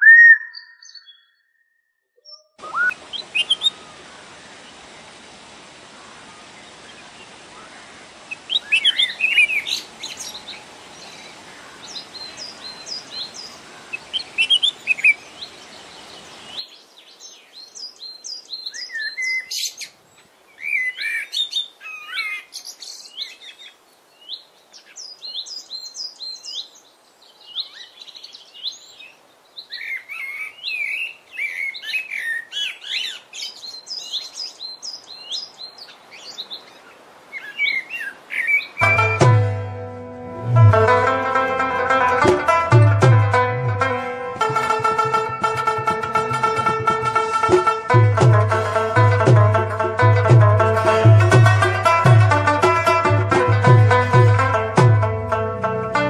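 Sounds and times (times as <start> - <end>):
songbirds chirping and singing: 0.1 - 1.6, 8.3 - 39.2
steady background hiss: 2.6 - 56.0.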